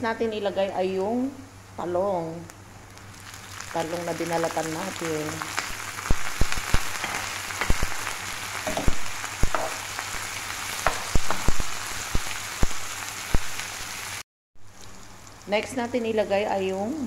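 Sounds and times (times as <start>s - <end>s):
vegetables sizzling in a pan: 2.5s - 17.0s
spoon knocking against pan: 8.7s - 9.8s, 10.8s - 11.5s.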